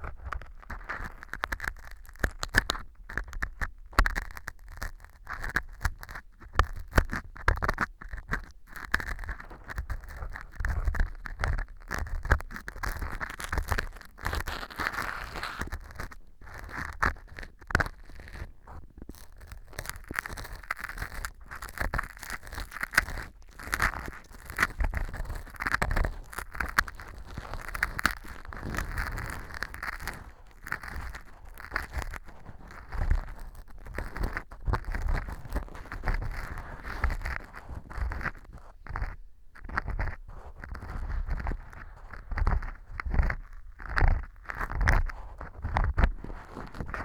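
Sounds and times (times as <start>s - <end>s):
tool scraping and crunching: 12.7s - 39.2s.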